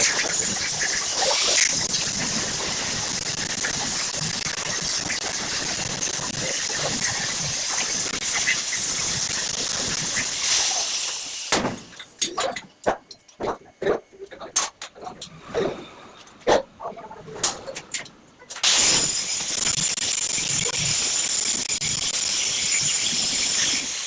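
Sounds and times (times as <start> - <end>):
electric arc welding sizzle: 0.0 - 12.2, 18.6 - 24.0.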